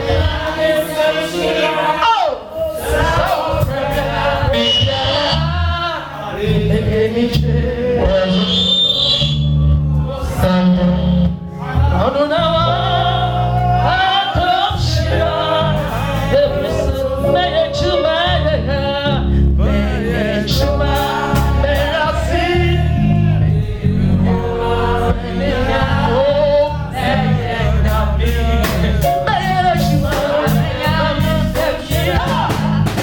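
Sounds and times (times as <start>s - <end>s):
voices singing gospel: 0.0s - 33.0s
stepping bass line: 20.5s - 33.0s
percussion: 27.9s - 33.0s.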